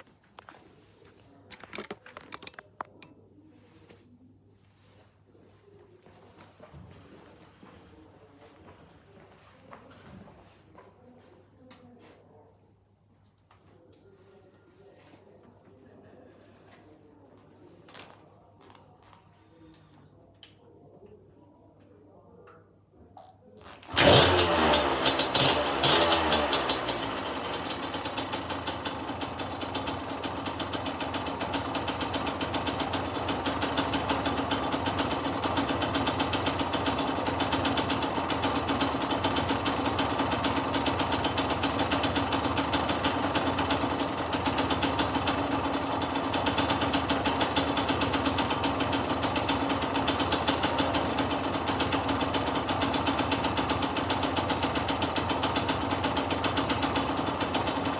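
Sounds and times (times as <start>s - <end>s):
two-stroke engine starting and idling: 23.6s - 57.9s.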